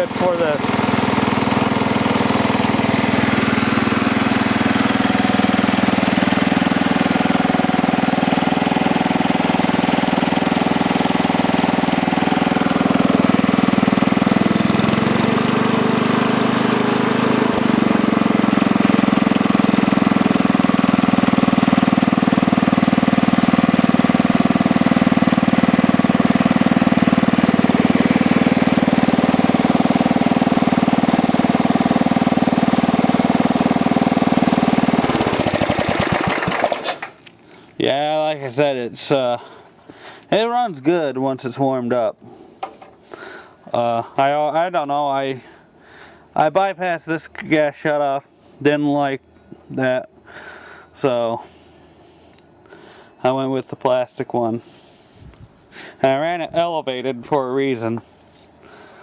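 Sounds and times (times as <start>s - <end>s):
garden tractor engine running: 0.0s - 37.7s.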